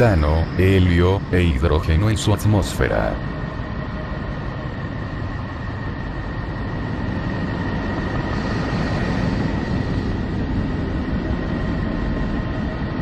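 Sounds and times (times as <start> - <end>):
thin steady high tone: 0.0 - 6.8
deep rumbling drone: 0.0 - 12.9.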